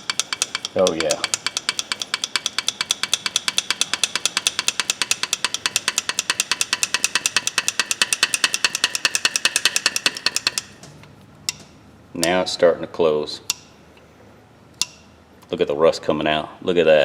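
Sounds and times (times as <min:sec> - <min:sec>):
metal pliers clicking: 0:00.0 - 0:10.9.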